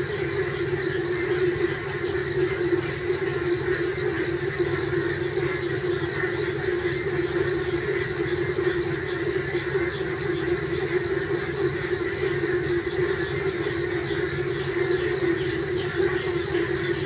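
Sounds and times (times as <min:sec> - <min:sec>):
chorus of frogs calling: 0:00.0 - 0:17.0.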